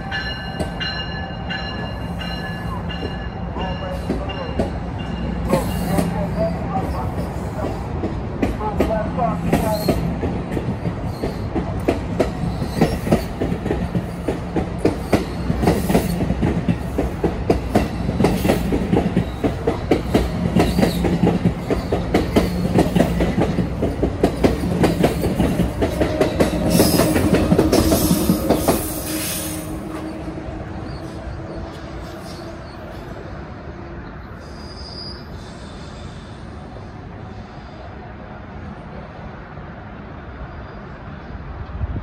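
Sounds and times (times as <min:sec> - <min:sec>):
train wheels clattering: 0:07.1 - 0:30.2.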